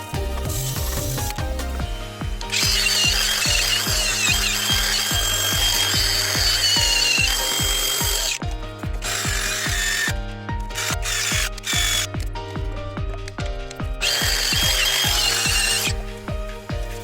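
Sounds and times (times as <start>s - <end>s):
background music with steady beat: 0.0s - 17.0s
disc grinder whining: 2.5s - 8.4s, 9.0s - 12.2s, 14.0s - 16.0s.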